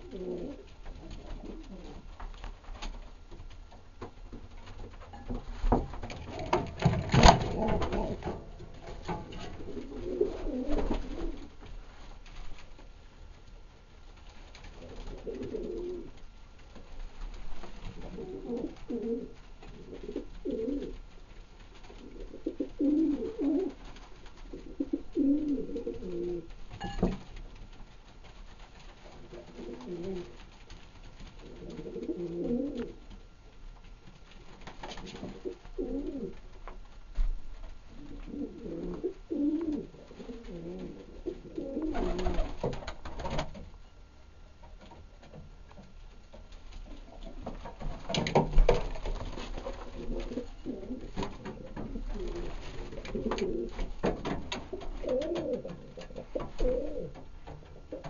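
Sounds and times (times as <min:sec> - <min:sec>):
pigeons cooing: 0:00.0 - 0:02.2, 0:06.1 - 0:11.6, 0:14.8 - 0:16.2, 0:17.8 - 0:21.1, 0:21.8 - 0:26.7, 0:29.0 - 0:30.5, 0:31.4 - 0:33.1, 0:34.8 - 0:36.5, 0:37.9 - 0:43.5, 0:46.8 - 0:58.0.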